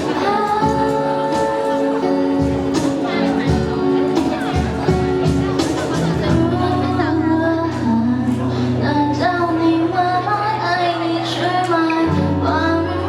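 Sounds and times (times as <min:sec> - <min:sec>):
woman singing: 0:00.0 - 0:13.0
drum and cymbal hits: 0:02.4 - 0:06.6.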